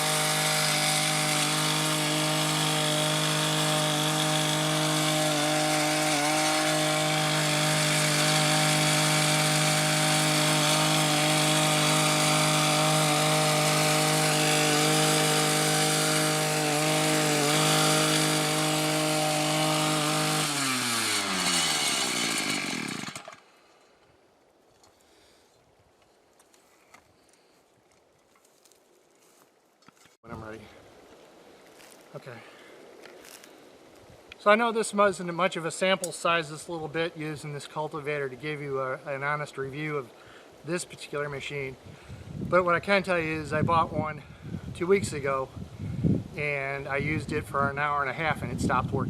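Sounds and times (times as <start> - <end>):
small engine running: 0.0 - 23.5.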